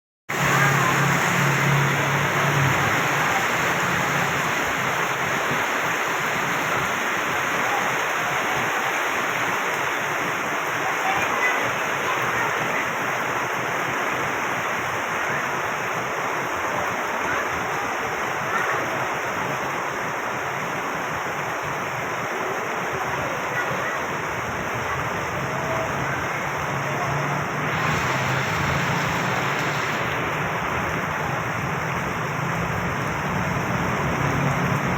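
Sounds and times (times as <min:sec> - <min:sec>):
low engine hum: 0:00.3 - 0:05.4, 0:24.6 - 0:34.9
heavy rain: 0:00.3 - 0:34.9
tyres swishing through water: 0:00.3 - 0:34.9.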